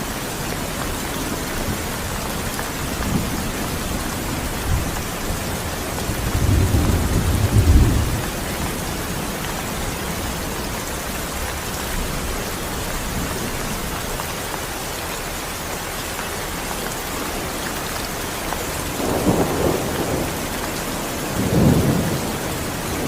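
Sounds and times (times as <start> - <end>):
steady rain hiss: 0.0 - 23.0
low thunder rumble: 0.6 - 10.6, 18.7 - 23.0.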